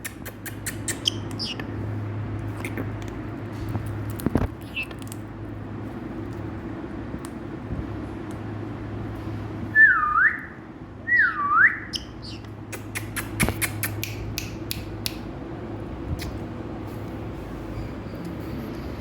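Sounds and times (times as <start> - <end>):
steady low hum: 0.0 - 19.0
parakeet whistling: 0.4 - 1.6, 9.7 - 12.4.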